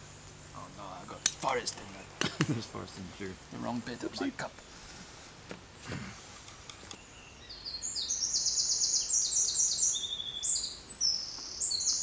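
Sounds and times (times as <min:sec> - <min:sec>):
songbird trilling song: 0:06.9 - 0:12.0.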